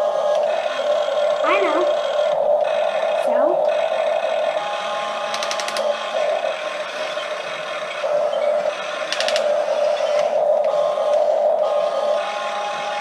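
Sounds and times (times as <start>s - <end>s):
small electric motors whining: 0.0s - 13.0s
rapid clicking: 5.2s - 6.6s, 8.0s - 11.5s.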